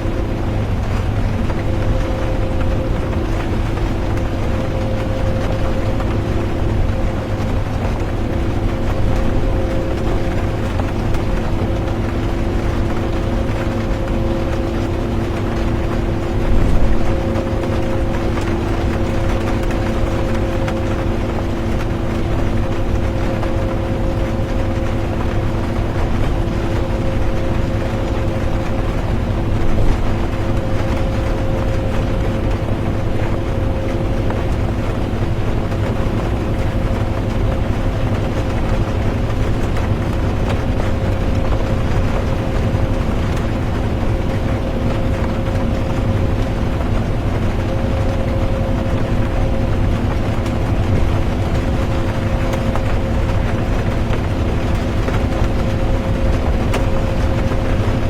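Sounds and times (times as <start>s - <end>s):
bus engine drone: 0.0s - 58.0s.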